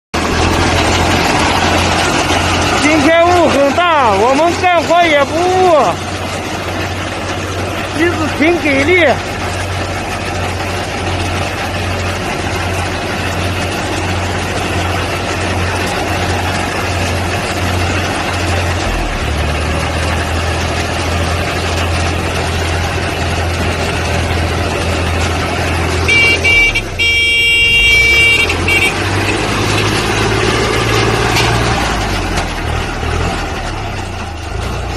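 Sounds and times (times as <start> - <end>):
tractor engine droning: 0.1 - 34.9
high horn-like tone: 26.1 - 29.4.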